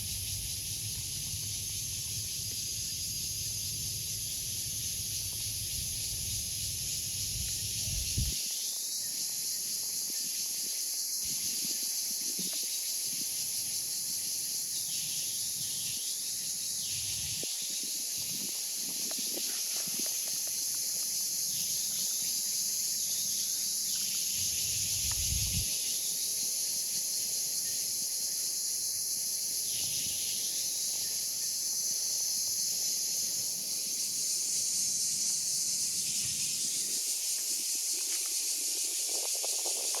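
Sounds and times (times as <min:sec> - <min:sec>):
cicada buzzing: 0:24.2 - 0:25.8.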